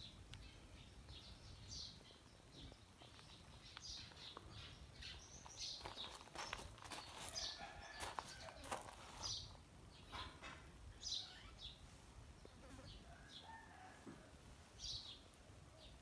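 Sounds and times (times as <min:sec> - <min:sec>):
high bird chirps: 0:11.0 - 0:11.8.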